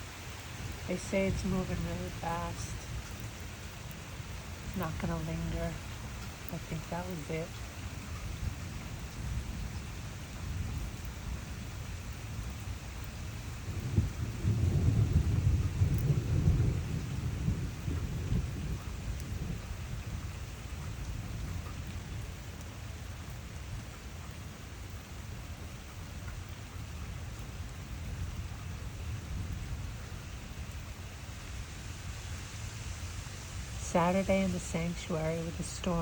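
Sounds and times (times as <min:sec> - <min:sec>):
rain falling: 0:00.0 - 0:36.0
thunder rumbling: 0:00.6 - 0:12.6, 0:13.3 - 0:22.5, 0:33.5 - 0:36.0.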